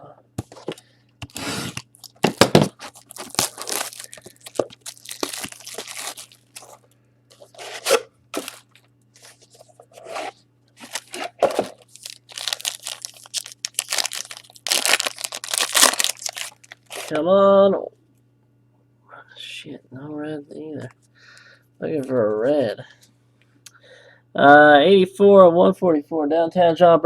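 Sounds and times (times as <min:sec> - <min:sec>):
card pack packaging tearing: 0:01.2 - 0:06.8, 0:07.4 - 0:09.4, 0:10.0 - 0:17.1.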